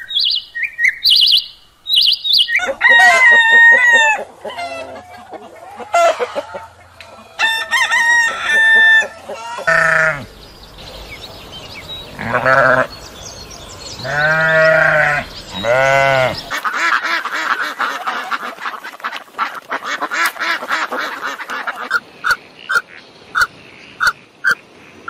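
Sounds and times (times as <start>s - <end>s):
ducks quacking: 2.5s - 25.0s
sheep bleating: 9.4s - 10.3s, 12.1s - 13.0s, 14.0s - 16.5s.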